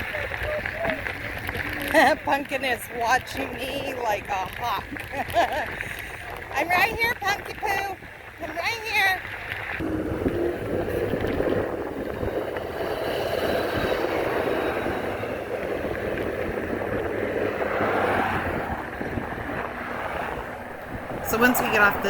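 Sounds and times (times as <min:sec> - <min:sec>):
road noise: 0:00.0 - 0:22.0
rushing wind: 0:09.6 - 0:22.0
vehicle passing: 0:09.8 - 0:22.0.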